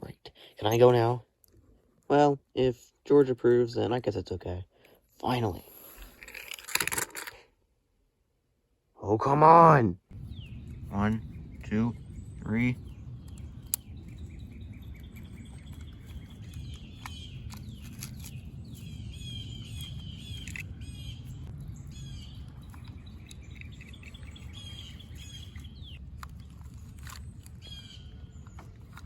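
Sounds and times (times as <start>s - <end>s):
low rumble: 10.1s - 29.0s
small birds chirping: 10.1s - 29.0s.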